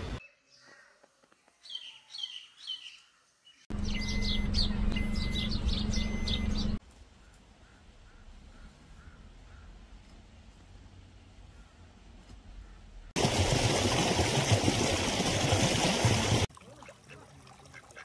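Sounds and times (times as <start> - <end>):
songbird chirping: 0.2 - 10.2.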